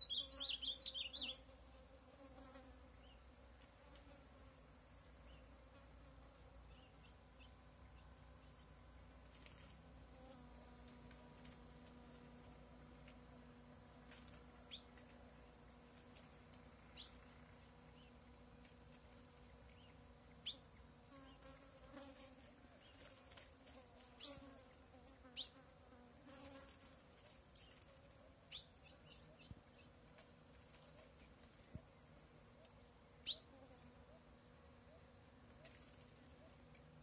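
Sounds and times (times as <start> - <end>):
bird chip calls: 0.0 - 1.4
faint insect buzz: 0.0 - 37.0
low steady hum: 0.0 - 37.0.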